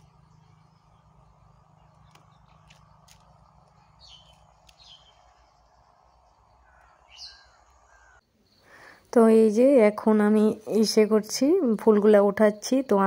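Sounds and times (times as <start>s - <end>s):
small bird chirping: 0.0s - 9.4s
faint outdoor hush: 0.0s - 12.0s.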